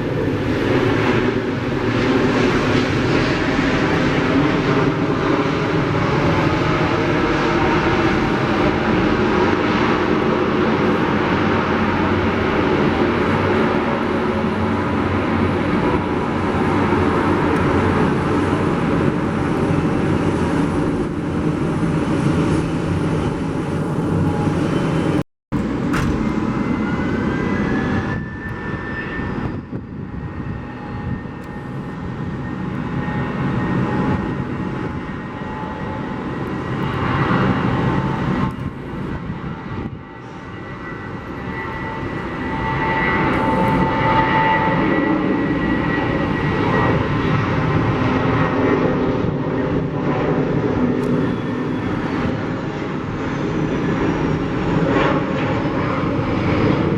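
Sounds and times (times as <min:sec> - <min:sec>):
high engine whine: 0:00.0 - 0:56.9
jet engines rumbling: 0:00.0 - 0:56.9.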